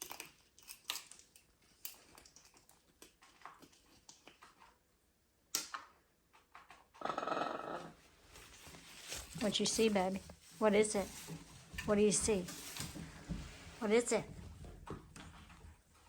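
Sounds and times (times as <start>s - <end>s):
person speaking: 9.4s - 11.2s, 11.8s - 12.6s, 13.8s - 14.3s.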